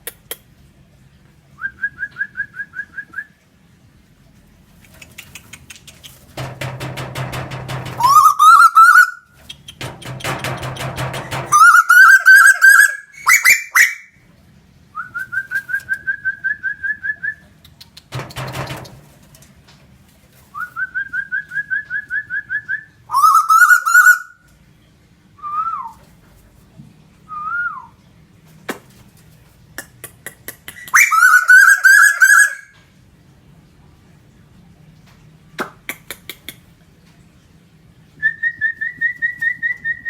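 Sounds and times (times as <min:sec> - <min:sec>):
loud rustling: 0:05.9 - 0:08.4
bird trilling: 0:07.8 - 0:14.2, 0:23.1 - 0:24.4, 0:30.8 - 0:32.7
bird whistled swooping notes: 0:11.5 - 0:14.0, 0:31.0 - 0:32.6.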